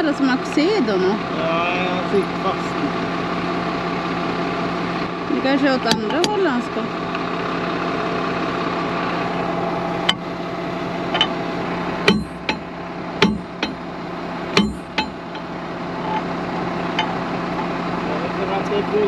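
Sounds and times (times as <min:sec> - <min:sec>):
tractor engine idling: 0:00.0 - 0:19.0
sharp metallic knocks: 0:05.8 - 0:06.6, 0:11.1 - 0:11.4, 0:12.0 - 0:13.9, 0:14.5 - 0:16.3.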